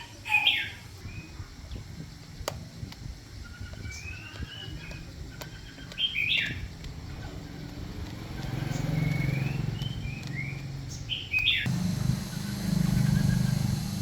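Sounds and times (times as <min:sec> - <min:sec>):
chickens calling: 0:00.0 - 0:01.0, 0:03.2 - 0:14.0.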